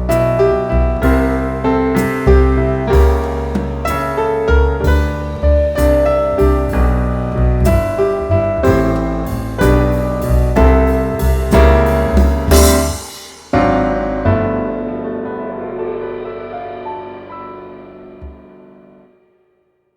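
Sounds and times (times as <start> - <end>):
piano music: 0.0 - 19.3.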